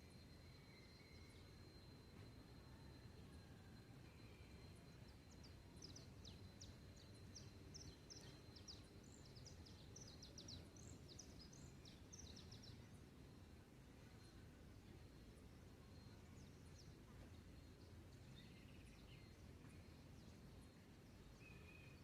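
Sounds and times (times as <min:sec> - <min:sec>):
low steady background rumble: 0:00.0 - 0:22.0
bird chirping: 0:04.2 - 0:13.4, 0:14.0 - 0:22.0.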